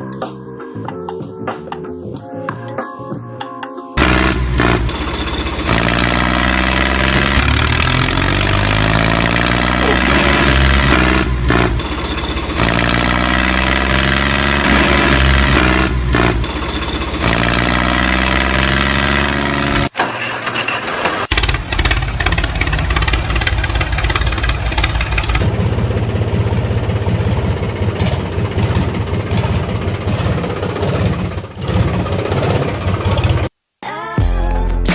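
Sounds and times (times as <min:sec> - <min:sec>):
engine revving: 0:04.0 - 0:33.5.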